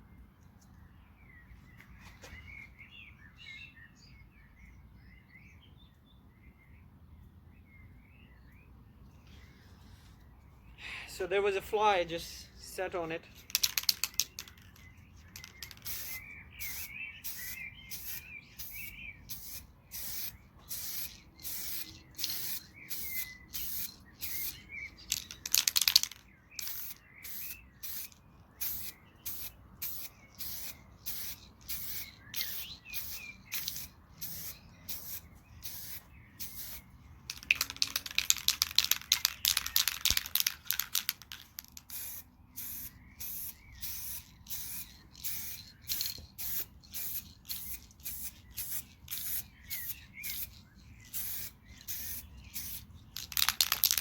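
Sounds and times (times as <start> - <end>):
spray paint can hissing: 13.4 - 54.0.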